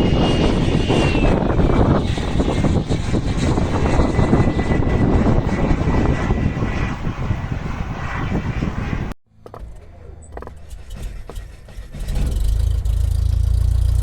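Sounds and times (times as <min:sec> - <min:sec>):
model aircraft engine running: 0:00.0 - 0:14.0
low engine rumble: 0:08.9 - 0:14.0.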